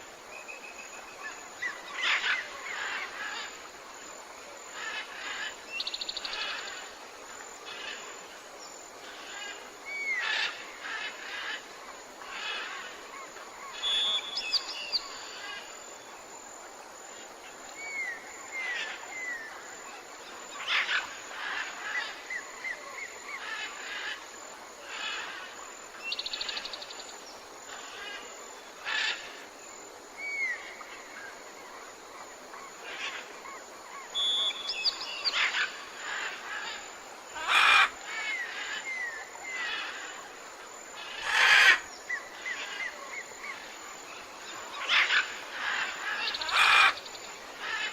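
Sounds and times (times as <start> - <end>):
steady background hiss: 0.0 - 47.9
birds chirping and trilling: 32.8 - 40.4, 41.0 - 47.9.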